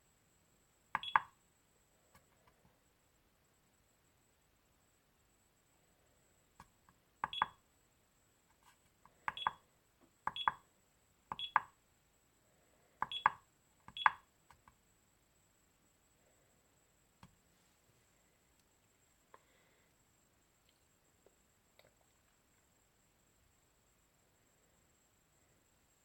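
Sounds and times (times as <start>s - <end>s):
battery charger short beeps: 1.0s - 1.3s, 7.3s - 7.6s, 9.4s - 9.6s, 10.4s - 10.6s, 11.4s - 11.7s, 13.1s - 14.2s.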